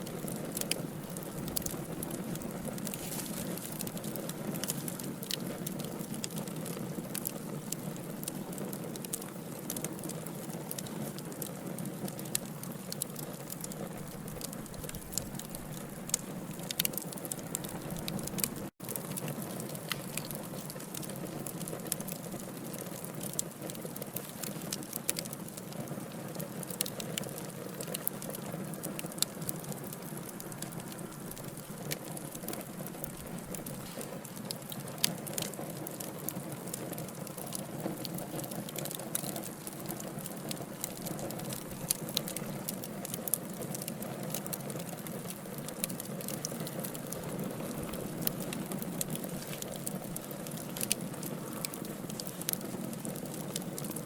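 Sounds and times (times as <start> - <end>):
fire hissing: 0.0 - 8.4, 26.6 - 36.0
wood crackling and popping: 0.0 - 54.0.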